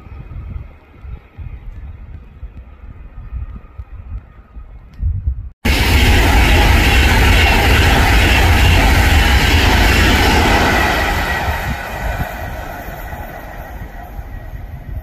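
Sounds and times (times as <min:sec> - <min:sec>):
train passing at speed: 0:05.6 - 0:15.0.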